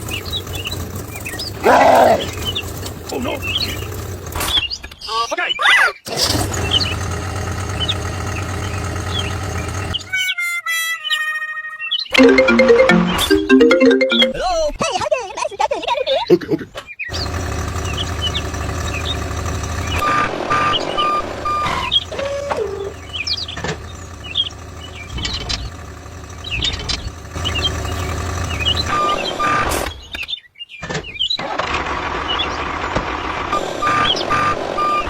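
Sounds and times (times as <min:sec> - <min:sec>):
construction vehicle running: 0:00.0 - 0:04.7, 0:06.2 - 0:10.2, 0:17.1 - 0:29.9
reversing beeper: 0:33.8 - 0:35.0.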